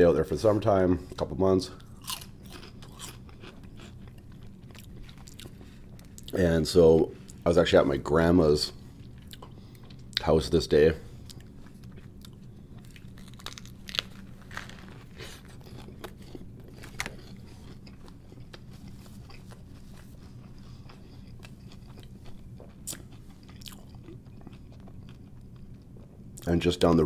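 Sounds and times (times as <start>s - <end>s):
food crunching: 1.7s - 7.4s, 11.2s - 26.5s
person chewing a burger: 1.8s - 6.4s, 8.8s - 10.3s, 11.1s - 26.5s.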